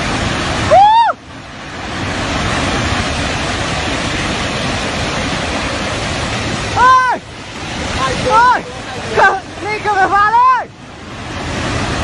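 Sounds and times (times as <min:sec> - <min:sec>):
rushing floodwater: 0:00.0 - 0:12.0
person shouting: 0:00.7 - 0:01.2, 0:06.8 - 0:07.2.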